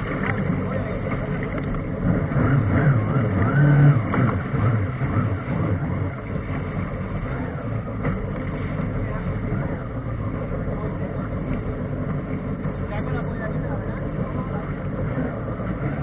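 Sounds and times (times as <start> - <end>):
jet ski engine revving: 0.0 - 16.0.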